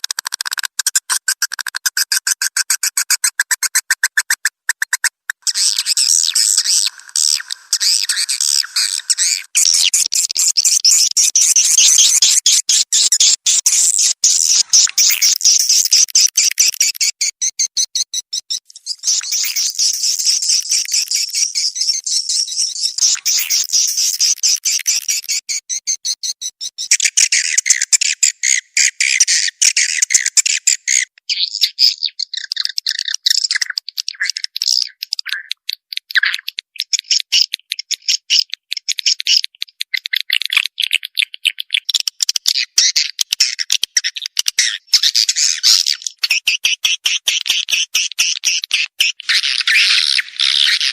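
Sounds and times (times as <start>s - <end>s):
swiftlet calls twittering: 2.2s - 27.0s.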